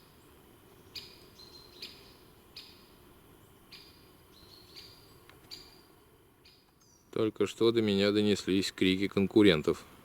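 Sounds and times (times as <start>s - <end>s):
bird chirping: 0.0s - 7.3s
low steady background: 0.0s - 10.0s.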